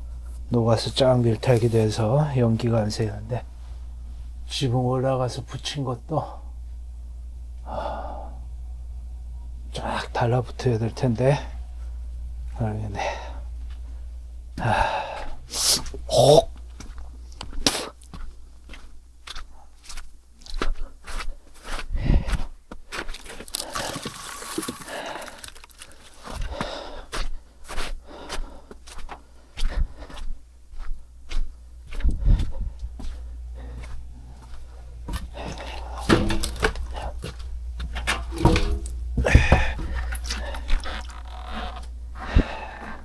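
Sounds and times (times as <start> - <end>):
footsteps scuffing and scraping: 16.7 - 28.0, 28.8 - 41.1
rustling: 23.1 - 26.5.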